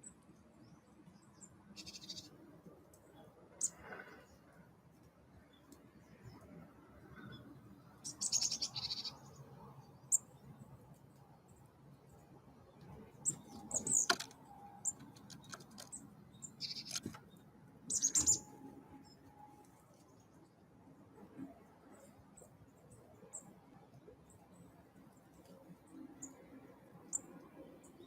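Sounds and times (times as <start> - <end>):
birds chirping rapidly: 1.2 - 2.4, 7.1 - 10.6, 13.0 - 19.2
sharp bird ticks: 13.3 - 17.3, 17.9 - 18.4.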